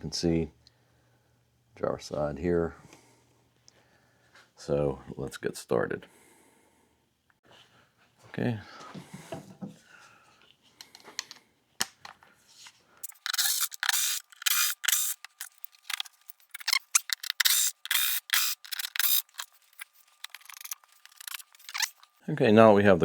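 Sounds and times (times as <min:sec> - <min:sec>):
scratchy clicks and scrapes: 0:13.0 - 0:22.2.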